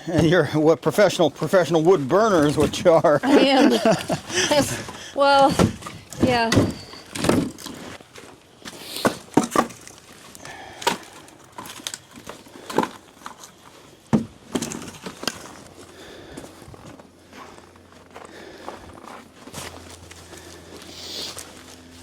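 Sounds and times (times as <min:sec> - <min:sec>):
firewood knocking and clattering: 0:02.1 - 0:03.1, 0:03.7 - 0:08.0, 0:09.0 - 0:15.6.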